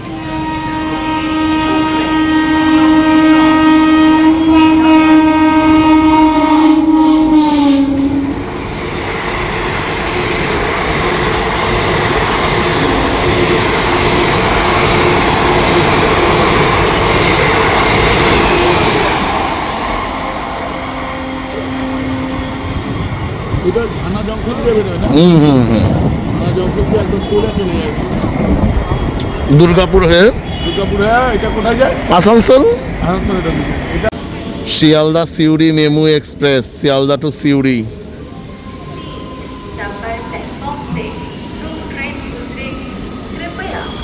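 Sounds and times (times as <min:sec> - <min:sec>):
train horn blast: 0:00.0 - 0:08.5, 0:20.0 - 0:23.1, 0:29.0 - 0:31.8
train rushing past with wheel clatter: 0:00.0 - 0:44.0.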